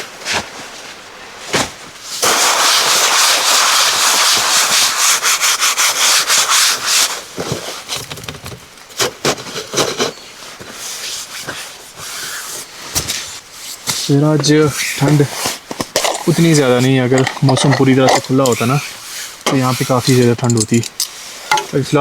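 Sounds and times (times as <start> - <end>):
loud rubbing noise: 2.2 - 7.3, 18.3 - 20.4
knocks and rustles of gear: 7.3 - 11.6, 12.8 - 21.8.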